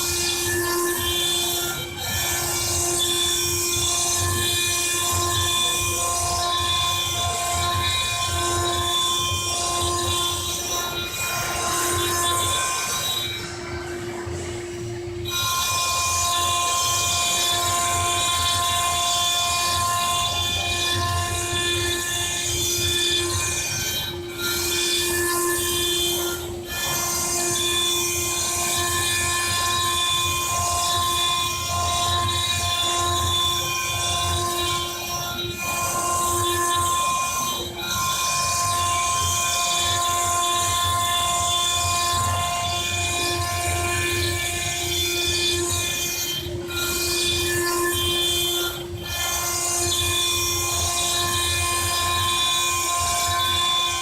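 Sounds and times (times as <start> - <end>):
stone cutting machine whining: 0.0 - 54.0.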